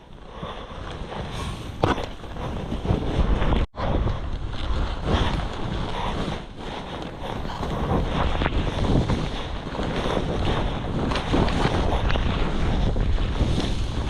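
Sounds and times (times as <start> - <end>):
wind buffeting microphone: 0.0 - 14.0
skis hissing through snow: 1.3 - 1.8, 6.9 - 14.0.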